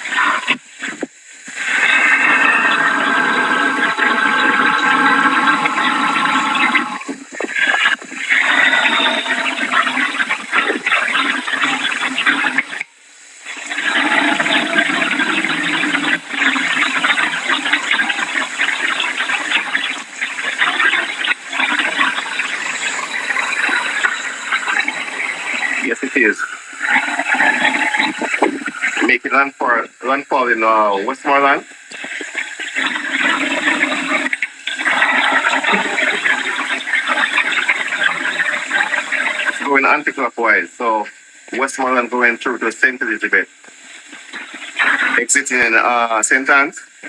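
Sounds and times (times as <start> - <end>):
heavy rain: 0.0 - 29.2.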